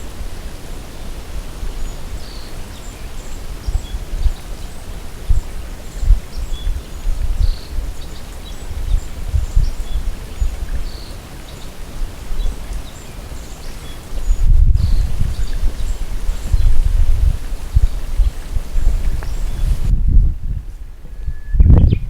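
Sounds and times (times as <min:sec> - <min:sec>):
wind on microphone: 0:00.0 - 0:22.0
faint bird chirps: 0:21.1 - 0:22.0.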